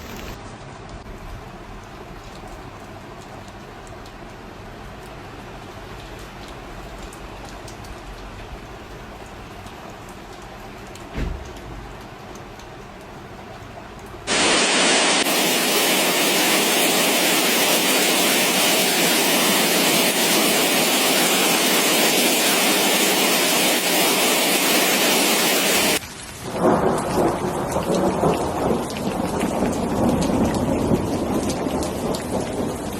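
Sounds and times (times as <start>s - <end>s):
rain: 0.0s - 32.9s
low rumbling thunder: 26.5s - 32.9s.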